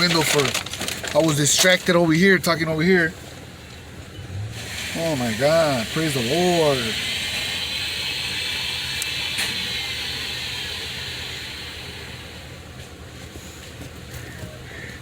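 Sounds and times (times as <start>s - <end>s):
car engine idling: 0.0s - 15.0s
hiss: 4.5s - 12.8s.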